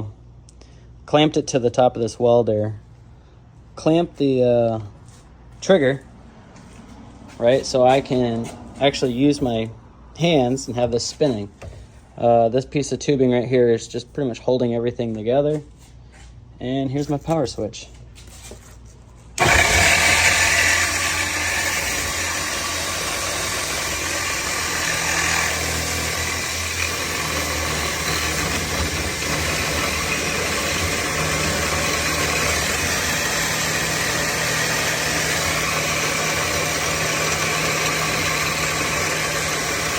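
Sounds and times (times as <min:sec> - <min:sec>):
power drill motor whine: 0:19.4 - 0:39.9.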